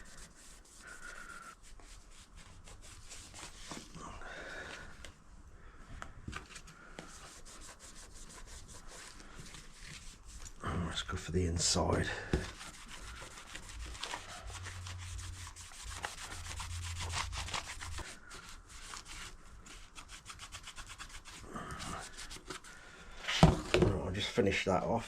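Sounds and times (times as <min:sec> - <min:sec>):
rag rubbing on plastic: 0:11.6 - 0:22.7.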